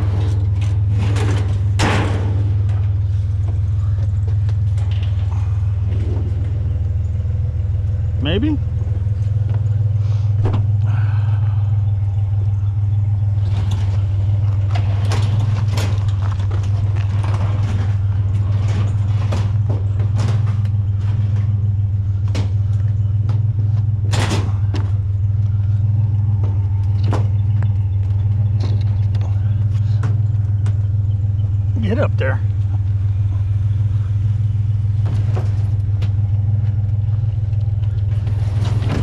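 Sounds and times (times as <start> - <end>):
metal shelving clanking: 0.0 - 7.1, 12.2 - 32.0, 32.7 - 39.0
truck engine idling: 0.0 - 39.0.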